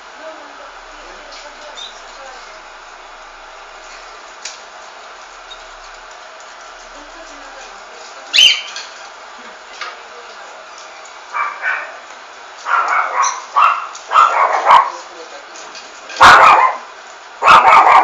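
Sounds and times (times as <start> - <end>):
dog barking: 11.3 - 12.0, 12.6 - 15.0, 16.2 - 18.0.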